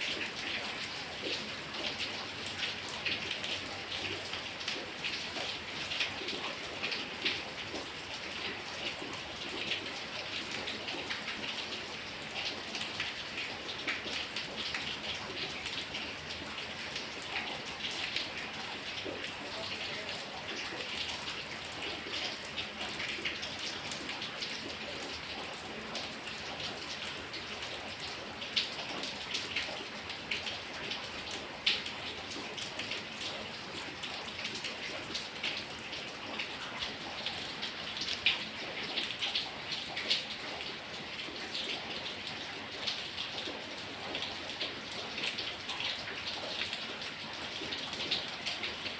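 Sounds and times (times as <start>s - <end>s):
heavy rain falling: 10.4s - 48.9s.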